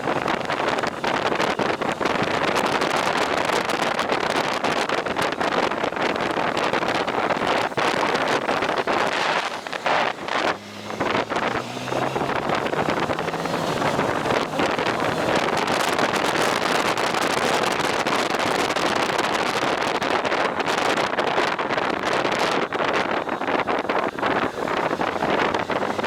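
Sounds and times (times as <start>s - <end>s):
wind buffeting microphone: 0.0s - 26.0s
motorcycle engine low note: 7.0s - 16.7s.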